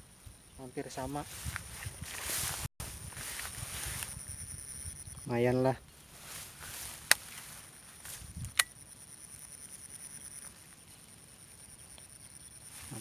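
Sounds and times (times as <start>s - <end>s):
sharp clicks: 8.4s - 8.8s.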